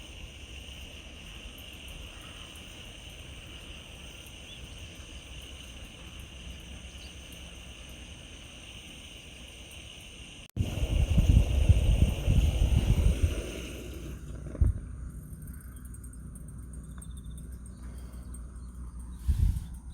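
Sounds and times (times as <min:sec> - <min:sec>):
steady high-pitched hiss: 0:00.0 - 0:19.9
wind rumble on microphone: 0:10.6 - 0:15.6, 0:19.0 - 0:19.9.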